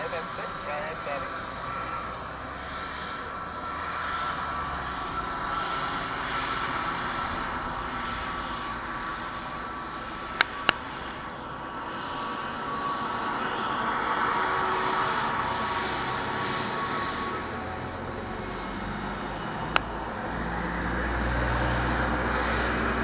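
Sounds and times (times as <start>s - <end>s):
jet engines rushing and whining: 0.0s - 23.0s
sharp clicks: 10.2s - 11.4s, 19.6s - 20.0s.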